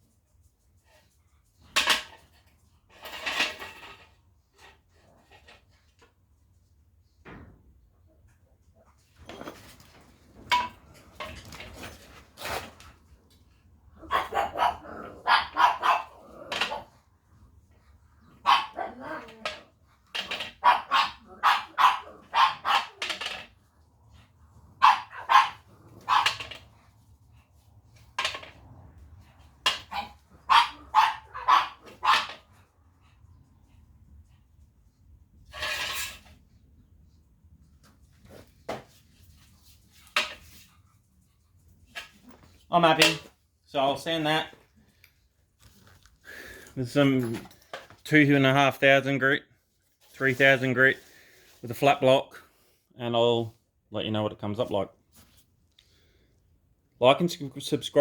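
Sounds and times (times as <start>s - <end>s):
dog barking: 14.0s - 16.8s, 18.4s - 19.0s, 20.6s - 23.0s, 24.8s - 26.5s, 29.9s - 32.4s.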